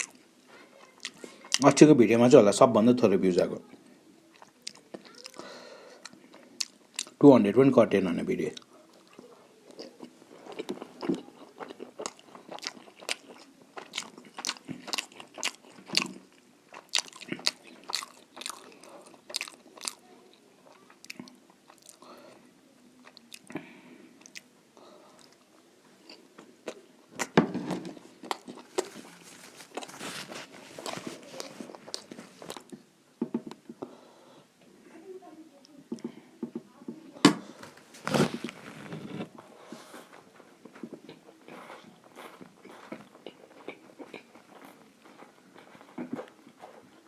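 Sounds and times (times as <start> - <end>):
person chewing food: 0.0 - 1.7, 4.3 - 7.2, 8.5 - 22.3, 23.0 - 32.8, 37.6 - 47.0.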